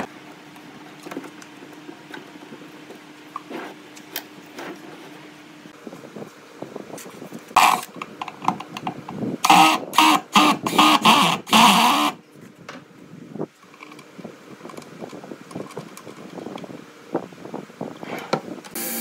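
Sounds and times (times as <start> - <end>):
power tool motor bursts: 9.4 - 12.2, 18.8 - 19.0.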